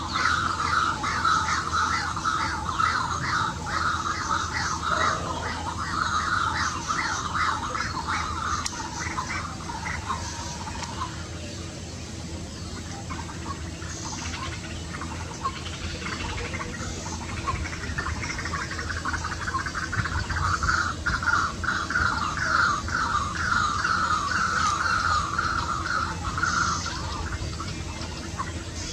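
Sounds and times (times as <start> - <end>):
steady low hum: 0.0 - 28.9
waterhen calling repeated notes: 0.1 - 11.0.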